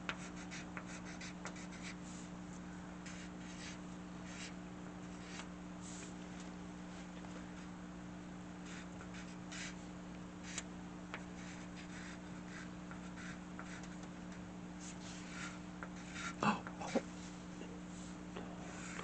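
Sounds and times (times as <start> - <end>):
faint steady hum: 0.0 - 19.0
pencil scratching on paper: 0.1 - 2.2, 3.0 - 4.5, 8.6 - 9.8, 11.2 - 14.0, 14.8 - 17.0, 18.6 - 19.0.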